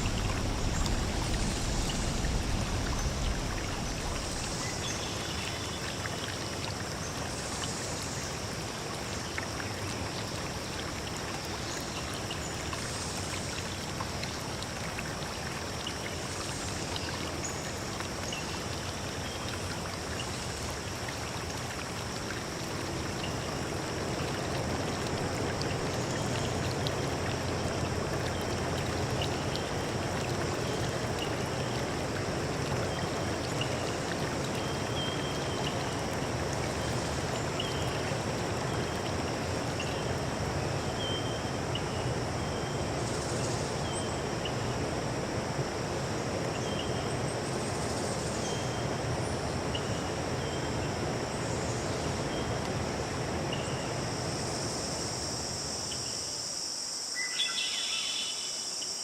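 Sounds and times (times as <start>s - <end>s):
stream flowing: 0.0s - 57.1s.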